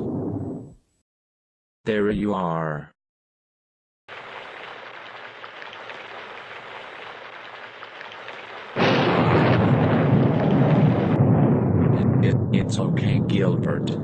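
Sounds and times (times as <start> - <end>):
steady rain falling: 4.1 - 11.3
thunder clap and rumbling: 8.7 - 14.0.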